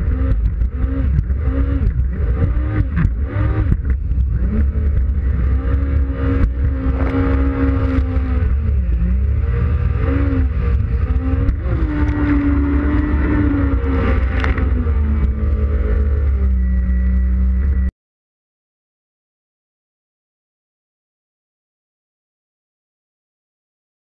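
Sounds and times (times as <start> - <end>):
jet ski engine running: 0.0 - 17.9.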